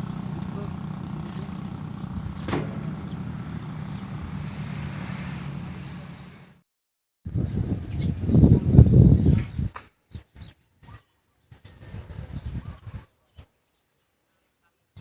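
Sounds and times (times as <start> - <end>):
engine humming: 0.0 - 6.6.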